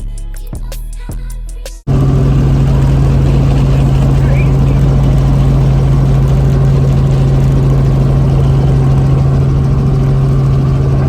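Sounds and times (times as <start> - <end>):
helicopter engine and rotor drone: 1.9 - 11.0.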